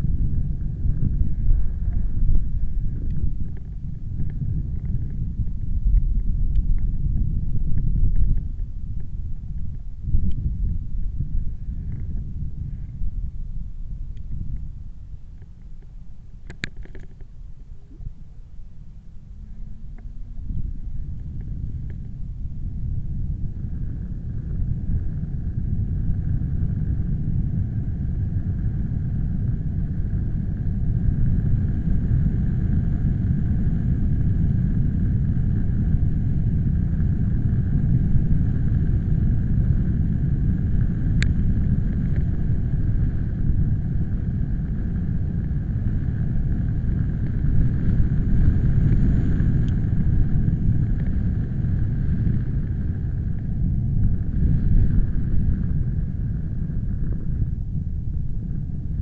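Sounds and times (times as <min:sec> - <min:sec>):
wind buffeting microphone: 0:00.0 - 0:59.0
sharp click: 0:16.4 - 0:17.3.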